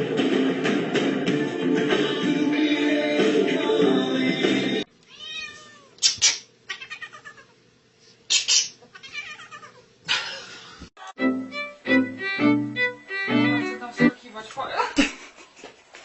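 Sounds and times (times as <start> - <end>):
cat meowing: 5.1 - 6.0, 6.7 - 7.6, 8.9 - 9.8.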